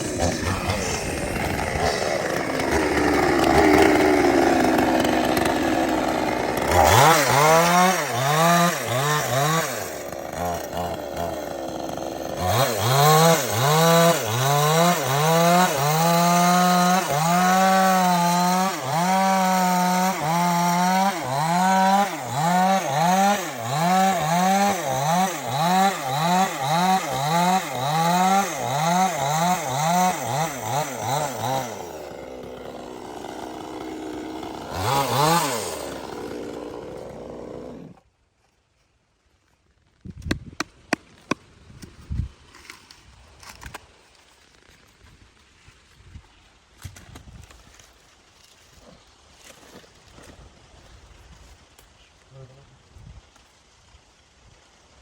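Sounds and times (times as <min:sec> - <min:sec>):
chainsaw cutting wood: 0:00.0 - 0:38.1.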